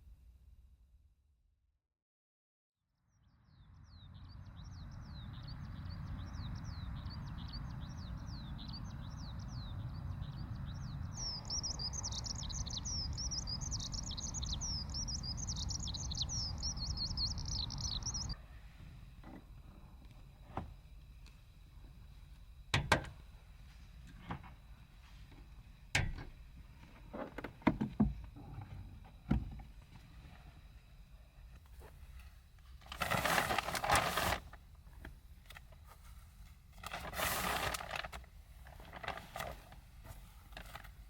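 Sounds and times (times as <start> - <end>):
low rumble of breeze: 3.2 - 24.0
skylark singing: 3.9 - 18.4.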